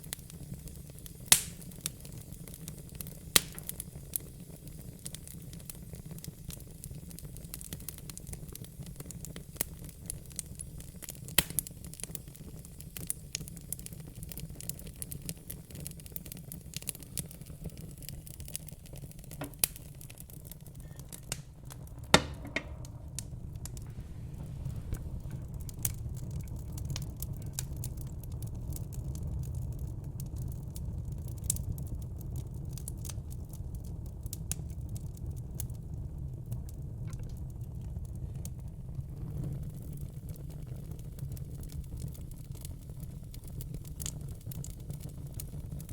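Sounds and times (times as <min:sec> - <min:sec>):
sharp fire pops: 0:00.0 - 0:32.1
low fire rumble: 0:00.0 - 0:45.9
wood fire crackling: 0:00.0 - 0:45.9.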